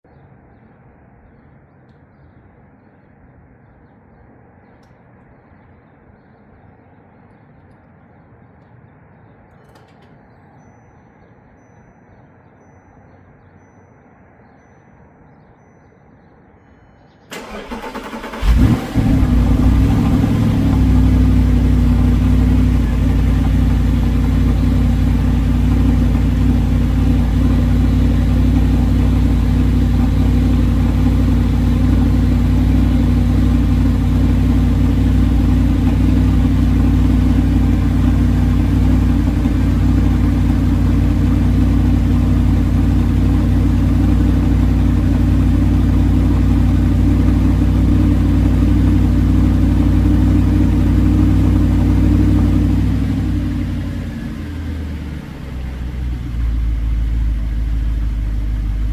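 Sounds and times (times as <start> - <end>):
car engine idling: 17.3 - 58.9.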